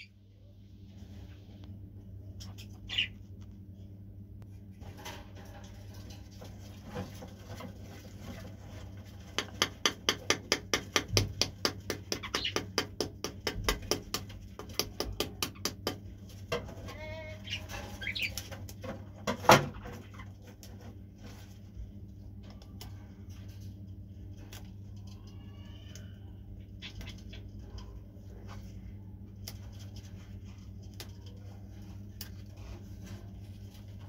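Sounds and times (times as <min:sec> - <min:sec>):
bird warbling call: 0:02.9 - 0:03.1.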